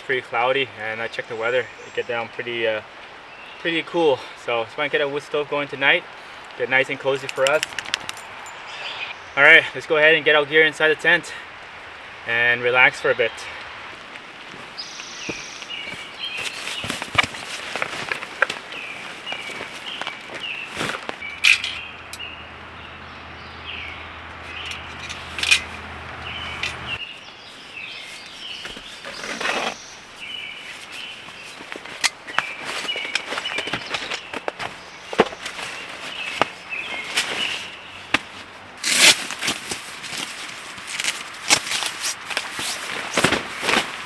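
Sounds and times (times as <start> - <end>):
small birds chirping: 0.0 - 44.0
rustling: 6.4 - 8.8, 13.4 - 44.0
camping gear knocking: 7.0 - 8.7, 14.5 - 27.0, 30.9 - 44.0
footsteps: 13.9 - 22.2.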